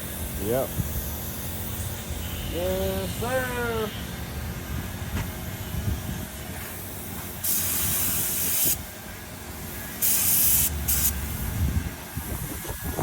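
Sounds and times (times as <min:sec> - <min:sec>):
paint spray gun hissing: 0:06.7 - 0:08.9, 0:09.6 - 0:11.4.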